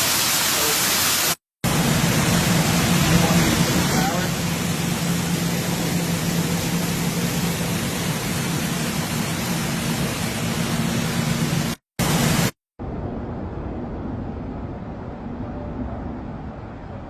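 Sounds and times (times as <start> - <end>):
wind and rain on microphone: 1.6 - 17.0
low hum: 12.8 - 17.0.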